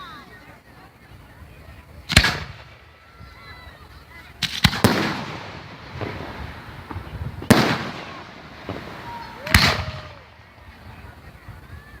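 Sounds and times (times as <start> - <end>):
fireworks bangs: 2.0 - 12.0
rumbling echo: 4.4 - 11.1.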